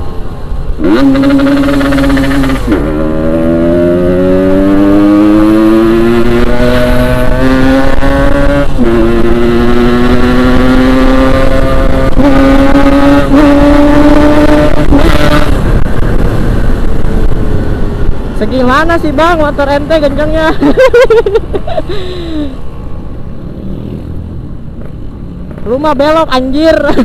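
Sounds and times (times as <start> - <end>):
two-stroke motorcycle engine accelerating: 0.8 - 15.6.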